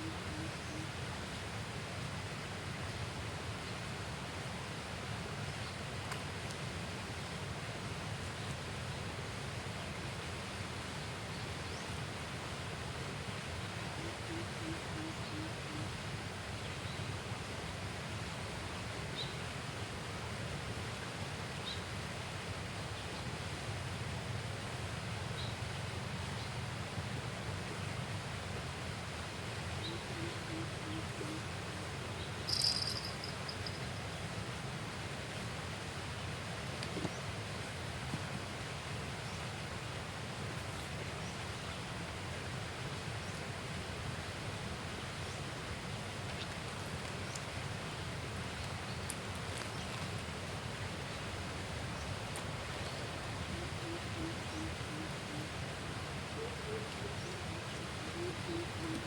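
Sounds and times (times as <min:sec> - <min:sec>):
high-pitched chirp: 0:32.5 - 0:33.8
faint high ticks: 0:32.5 - 0:33.9
low pulsing calls: 0:32.5 - 0:33.9, 0:53.4 - 0:55.6, 0:56.3 - 0:59.0.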